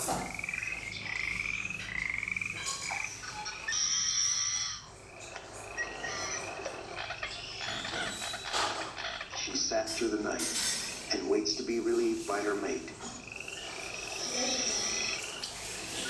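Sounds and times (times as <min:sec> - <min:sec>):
frogs calling in chorus: 0:00.0 - 0:16.0.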